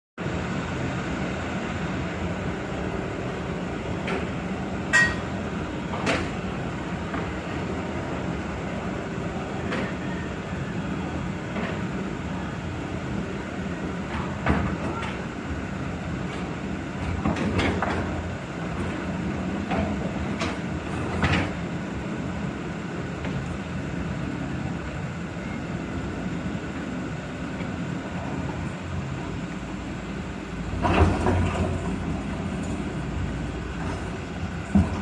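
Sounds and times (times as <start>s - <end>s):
excavator engine humming: 0.2s - 35.0s
sharp metallic clanks: 4.9s - 5.2s.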